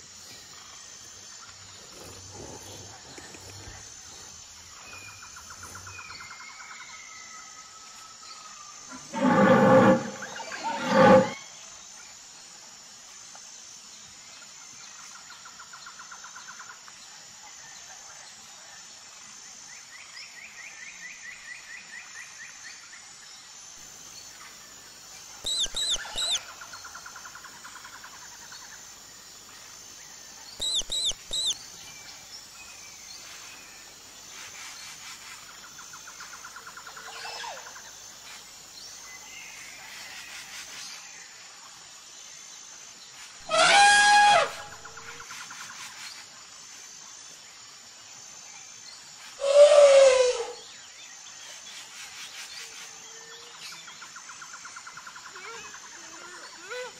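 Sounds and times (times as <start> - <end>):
high falling bird chirps: 25.4 - 26.4, 30.6 - 31.6
bird rhythmic trills: 25.4 - 26.9, 30.6 - 32.0.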